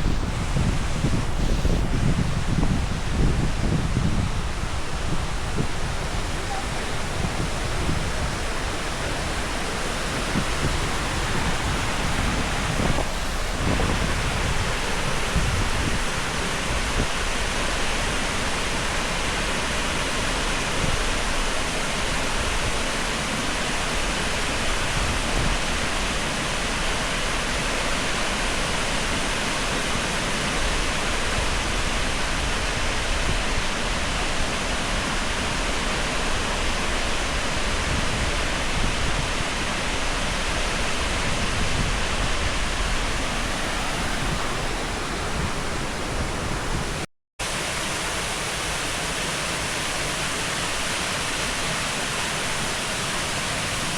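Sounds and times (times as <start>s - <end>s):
waterfall pouring: 0.0s - 22.2s, 42.6s - 53.9s.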